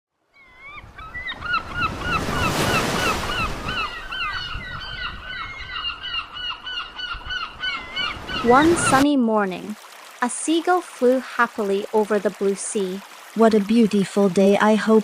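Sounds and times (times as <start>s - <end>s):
seagulls calling: 0.4s - 9.0s
sea waves washing: 0.8s - 4.9s, 7.1s - 15.0s.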